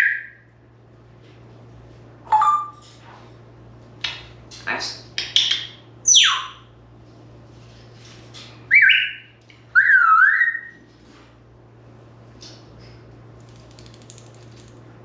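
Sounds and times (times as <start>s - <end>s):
parrot squawk: 8.7s - 10.7s
parrot whistles: 8.7s - 10.8s.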